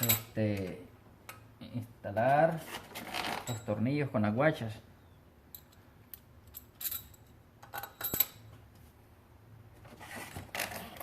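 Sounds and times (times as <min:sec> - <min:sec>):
metal bolts clinking: 0:00.0 - 0:00.4, 0:05.5 - 0:08.6.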